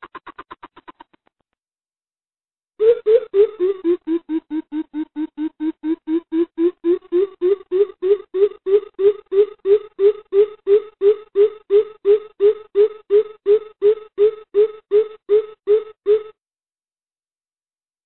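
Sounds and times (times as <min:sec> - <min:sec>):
bird deep hoots: 0:02.8 - 0:16.4.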